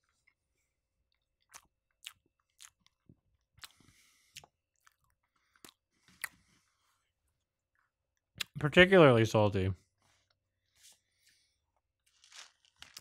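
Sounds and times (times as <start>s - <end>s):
chewing with mouth clicks: 1.1s - 6.4s.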